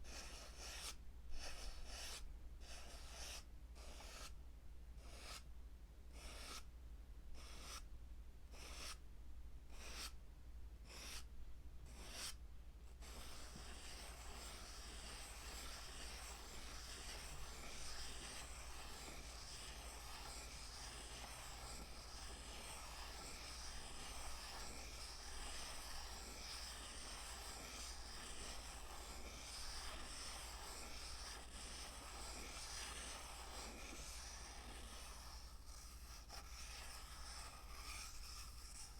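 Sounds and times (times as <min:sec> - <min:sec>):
asmr scratching strokes: 0:13.0 - 0:38.9.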